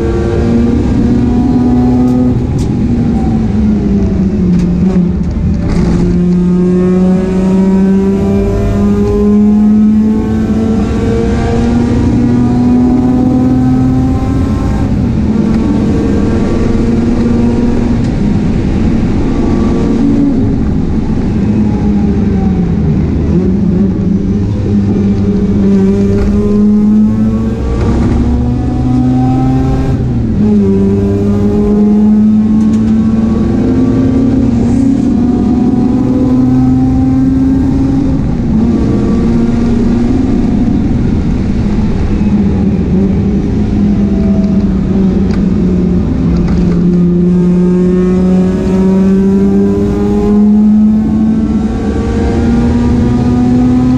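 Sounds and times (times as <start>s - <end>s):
race car engine at full throttle: 0.0s - 53.9s.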